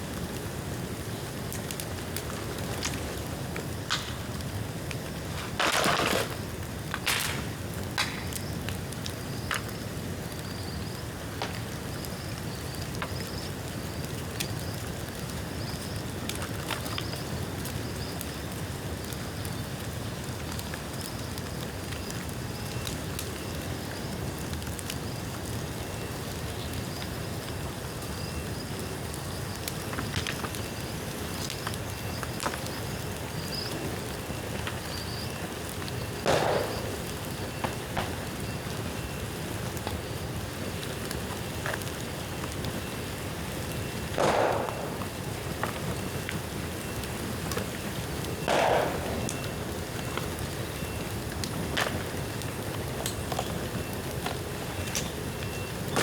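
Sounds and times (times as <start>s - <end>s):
bonfire hissing: 0.0s - 56.0s
fire crackles and pops: 0.0s - 56.0s.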